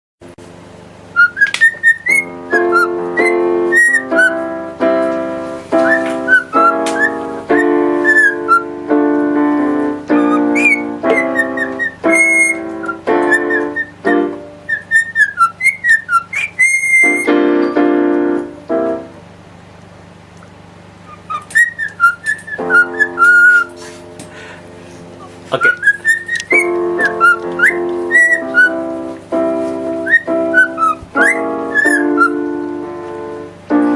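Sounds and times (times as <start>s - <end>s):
piano chords: 0.2s - 33.9s
parrot whistling a tune: 1.1s - 4.5s, 5.8s - 8.7s, 10.1s - 17.4s, 21.1s - 23.8s, 25.6s - 28.9s, 30.0s - 32.5s.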